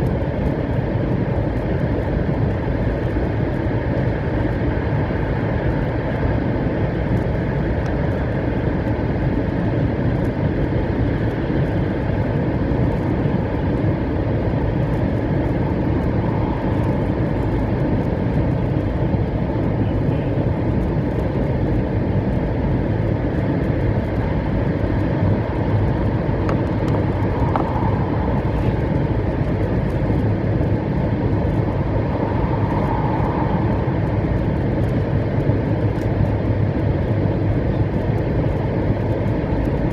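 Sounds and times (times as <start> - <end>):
train wheels rumbling on track: 25.6 - 39.3.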